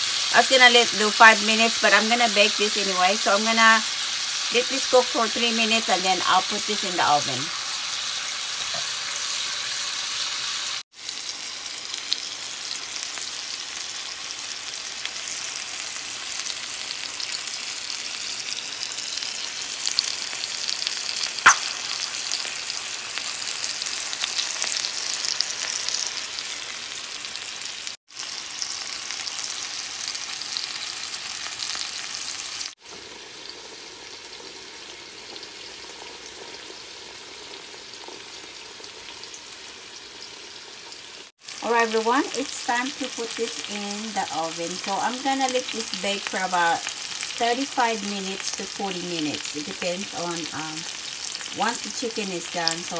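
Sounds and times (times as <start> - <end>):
chicken sizzling in a pan: 0.0 - 52.9
sharp pop of frying: 21.4 - 22.9.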